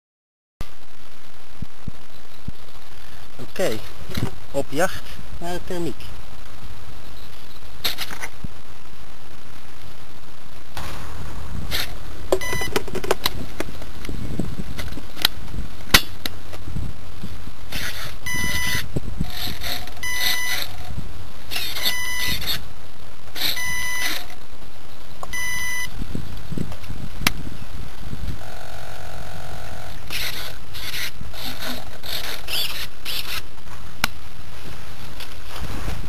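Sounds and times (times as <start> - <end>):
steady low noise: 0.6 - 36.0
electronic beeping: 12.4 - 12.8, 18.2 - 18.9, 20.0 - 20.8, 21.5 - 22.6, 23.4 - 24.3, 25.3 - 25.9.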